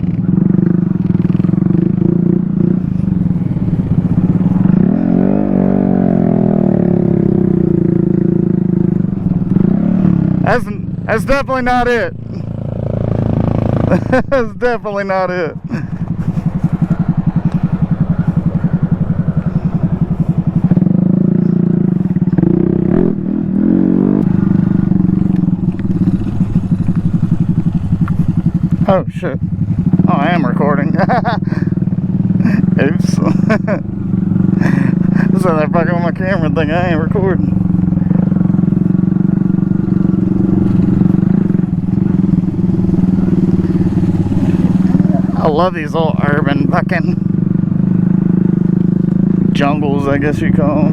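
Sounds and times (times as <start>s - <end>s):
mini motorcycle engine running: 15.3s - 22.9s, 24.1s - 50.9s.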